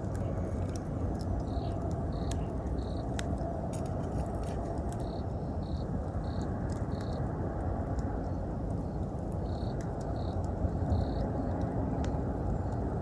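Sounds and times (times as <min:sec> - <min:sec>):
wood fire crackling: 0:00.0 - 0:13.0
insect chirping: 0:01.4 - 0:03.2, 0:05.0 - 0:07.2, 0:09.4 - 0:11.5.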